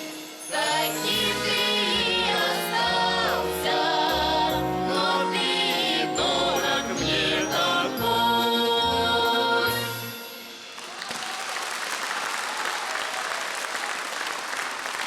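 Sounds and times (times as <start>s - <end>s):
audience applause: 10.8s - 15.0s.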